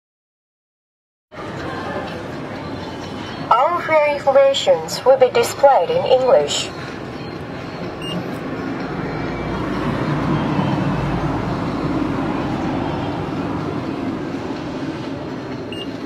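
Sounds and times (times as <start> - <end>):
train rumbling through station: 1.3 - 16.0
short electronic beep: 8.0 - 8.2.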